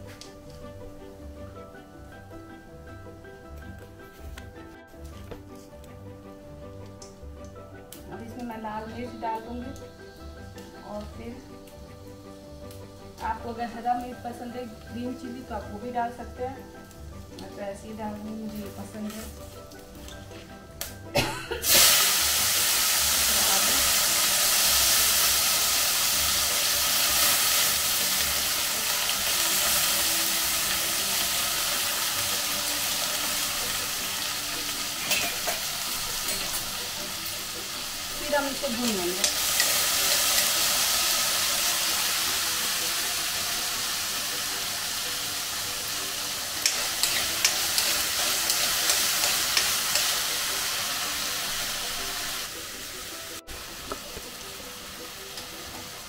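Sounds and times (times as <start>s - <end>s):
potatoes sizzling in a pan: 5.6s - 56.0s
metal spoon clicking against pan: 39.2s - 40.4s, 46.6s - 50.2s.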